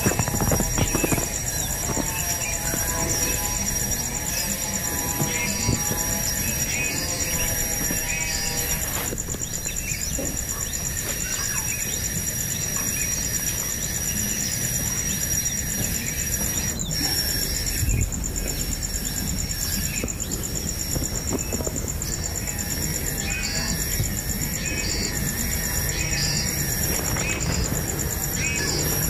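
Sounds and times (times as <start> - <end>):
bird chirps: 0.0 - 20.8
pulsing insect trill: 0.0 - 29.0.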